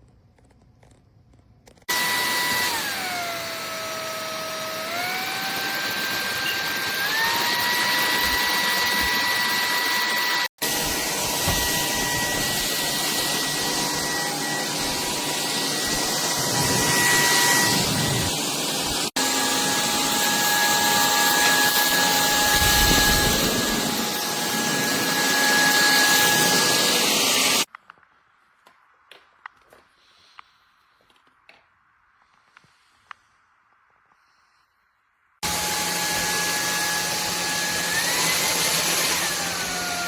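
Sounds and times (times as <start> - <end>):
stick vacuum running: 1.9 - 27.7, 35.4 - 40.0.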